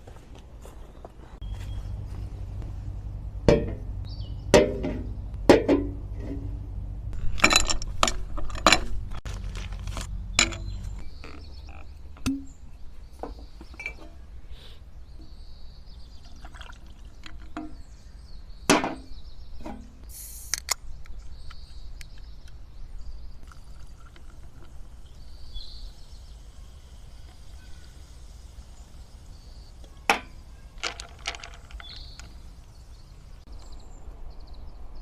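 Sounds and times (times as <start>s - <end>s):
liquid pouring: 16.3s - 17.3s.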